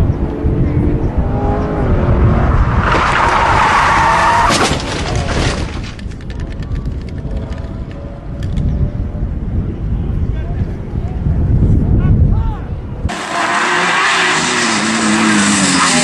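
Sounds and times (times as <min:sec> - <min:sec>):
tyres skidding and squealing: 0:02.2 - 0:05.9, 0:13.1 - 0:16.0.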